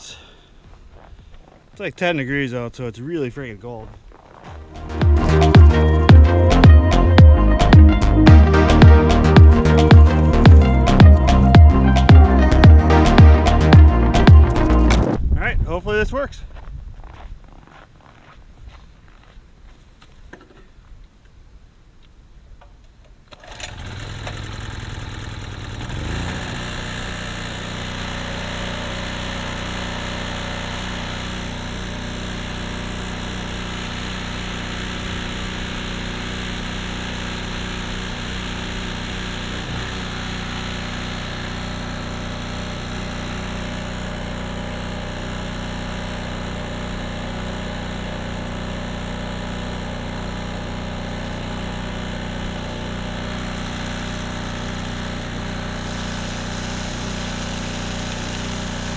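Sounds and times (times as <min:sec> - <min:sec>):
generator engine running: 0:04.5 - 0:15.2, 0:23.5 - 0:58.9.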